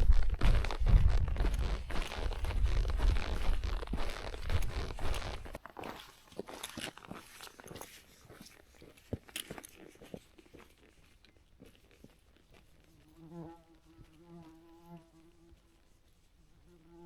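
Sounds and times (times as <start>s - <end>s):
faint clicks and crunches: 0.0s - 12.7s.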